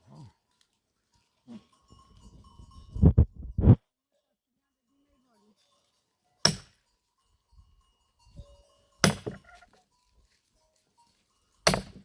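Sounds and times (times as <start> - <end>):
axe chopping firewood: 6.4 - 6.8, 9.0 - 9.6, 11.6 - 12.0.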